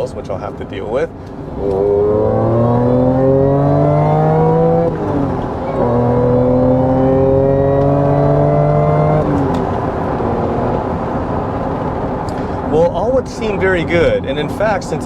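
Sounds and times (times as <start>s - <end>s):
gear upshift: 1.2s - 12.7s
car engine accelerating: 1.3s - 15.0s.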